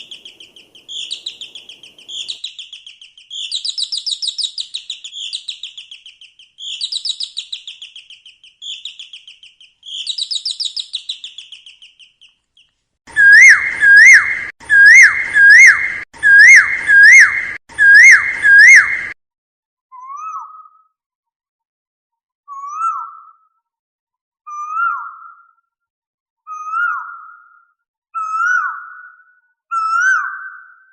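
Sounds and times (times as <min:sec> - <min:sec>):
bird whistling call: 0:00.0 - 0:11.9, 0:13.1 - 0:19.2
songbird trilling: 0:00.0 - 0:12.2.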